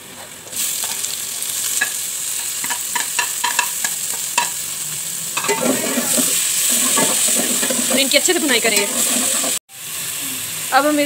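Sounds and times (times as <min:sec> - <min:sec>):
onions sizzling in oil: 0:00.0 - 0:11.0
spoon clinking on plate and pot: 0:05.4 - 0:08.0
spoon scraping a plate: 0:05.4 - 0:09.6.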